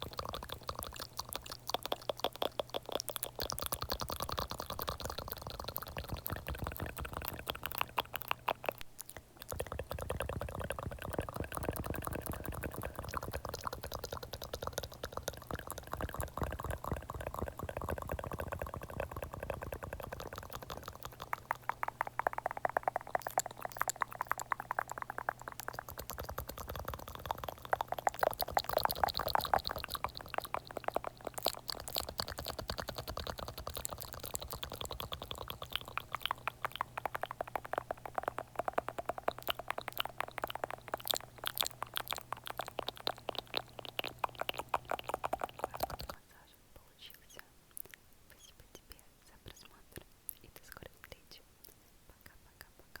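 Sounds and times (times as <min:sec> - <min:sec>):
moist clicks and smacks: 0:00.0 - 0:46.4.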